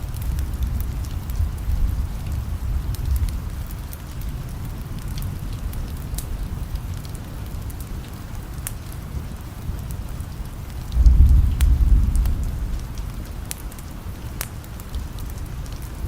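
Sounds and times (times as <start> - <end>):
thunder rumbling: 0.0 - 6.7, 10.9 - 13.8
steady rain: 0.0 - 16.0
wood fire crackling: 0.0 - 16.0.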